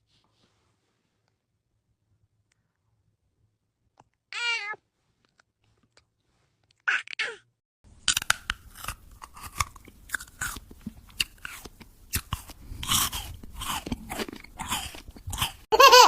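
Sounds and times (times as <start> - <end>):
crunching and chewing: 8.0 - 15.7.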